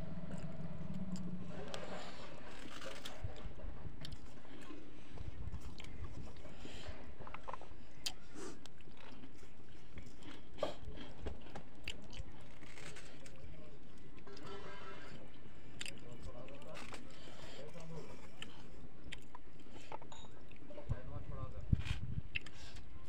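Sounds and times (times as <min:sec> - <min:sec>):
man chewing and lip smacking: 0:07.3 - 0:14.2, 0:18.0 - 0:20.7, 0:22.3 - 0:22.9.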